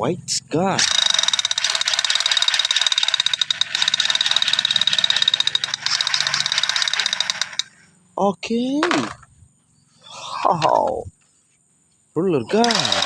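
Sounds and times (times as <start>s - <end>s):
toy gun rapid-fire sound effect: 0.8s - 7.7s, 12.5s - 13.0s.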